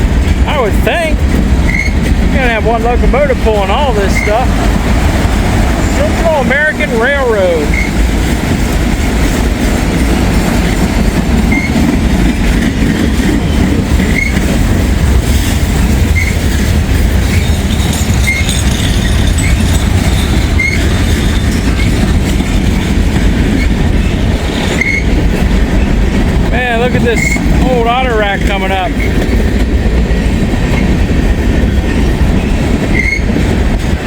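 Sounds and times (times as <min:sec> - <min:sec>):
train wheels rumbling on rail: 0:00.0 - 0:34.0
high wheel squeal: 0:01.6 - 0:02.1, 0:04.0 - 0:04.5, 0:07.1 - 0:08.0, 0:11.5 - 0:11.8, 0:13.5 - 0:14.4, 0:16.1 - 0:16.4, 0:17.2 - 0:22.1, 0:23.6 - 0:25.2, 0:27.2 - 0:27.6, 0:32.4 - 0:33.3.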